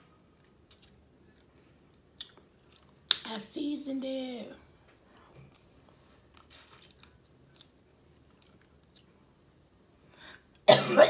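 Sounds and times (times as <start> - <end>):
faint chewing: 0.3 - 3.2, 4.9 - 9.4.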